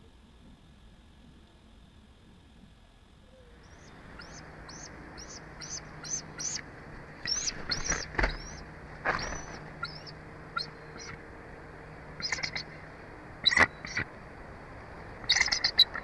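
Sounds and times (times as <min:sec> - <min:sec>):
bird piping high notes: 0:03.3 - 0:06.6, 0:07.2 - 0:08.6, 0:09.2 - 0:11.2.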